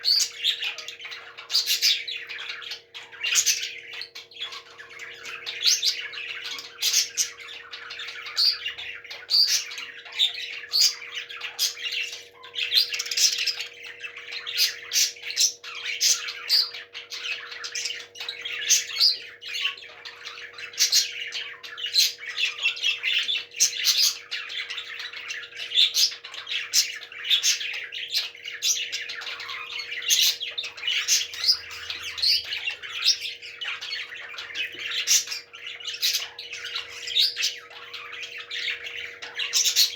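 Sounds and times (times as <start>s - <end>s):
parrots chirping and squawking: 0.0s - 39.9s.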